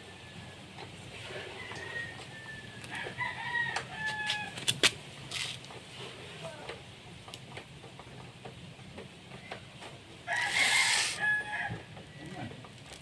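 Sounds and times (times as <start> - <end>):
rooster crowing: 1.4 - 4.6, 10.3 - 12.4.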